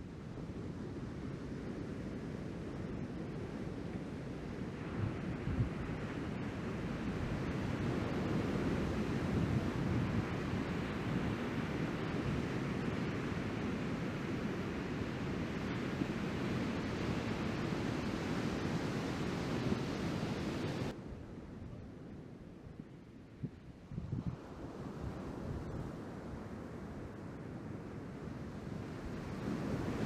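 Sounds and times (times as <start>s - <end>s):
wind buffeting microphone: 2.4s - 21.0s, 23.4s - 26.5s.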